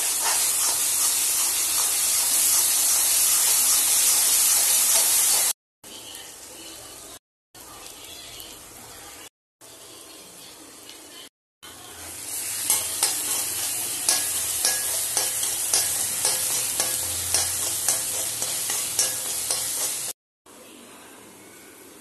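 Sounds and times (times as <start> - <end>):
steel spoon scraping a pan: 0.0 - 5.5, 12.3 - 20.2
onions sizzling in oil: 0.0 - 7.0, 11.7 - 20.2.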